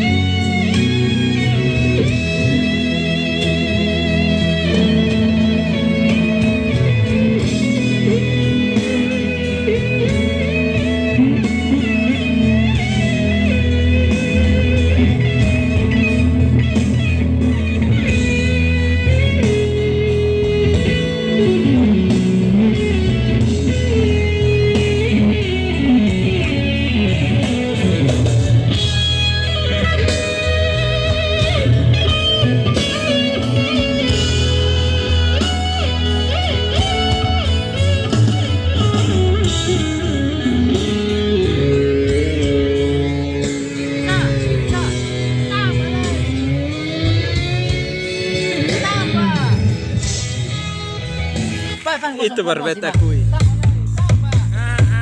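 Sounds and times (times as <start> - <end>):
bass: 0.0 - 55.0
electric guitar lead: 0.0 - 55.0
steady beat: 51.2 - 55.0.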